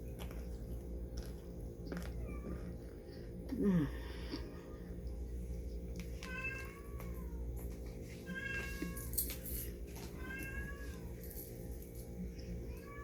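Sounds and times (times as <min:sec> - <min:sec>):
cat meowing: 0:10.2 - 0:11.0.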